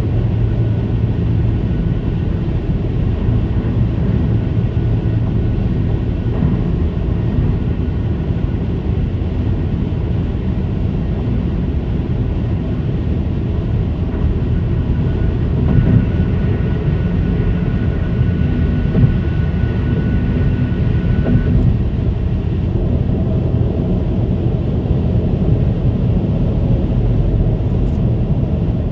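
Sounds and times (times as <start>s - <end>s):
car tyres humming on concrete: 0.0s - 28.9s
faint high whine: 10.6s - 24.3s.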